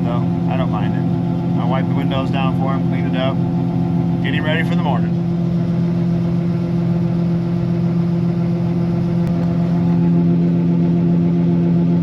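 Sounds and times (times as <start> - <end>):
combine harvester engine hum: 0.0 - 12.0.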